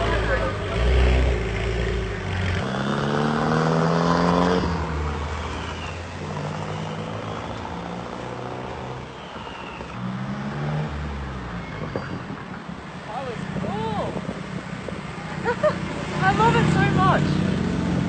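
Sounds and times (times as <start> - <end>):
car engine accelerating: 0.0 - 12.0, 13.4 - 18.0.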